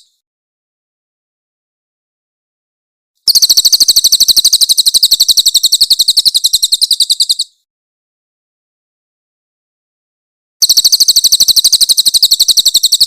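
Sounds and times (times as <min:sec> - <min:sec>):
bird rattling call: 0:03.3 - 0:07.6, 0:10.6 - 0:13.0.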